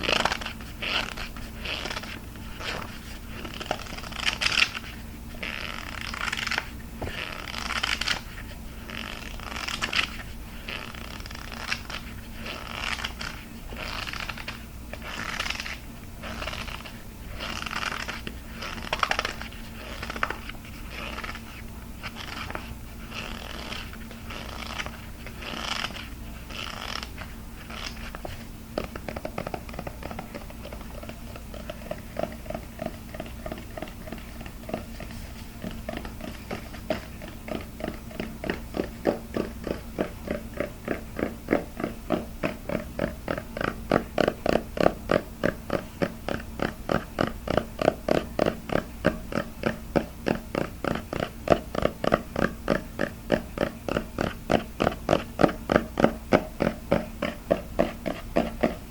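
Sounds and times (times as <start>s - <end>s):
low steady hum: 0.0s - 58.9s
scratchy rubbing: 0.0s - 58.9s.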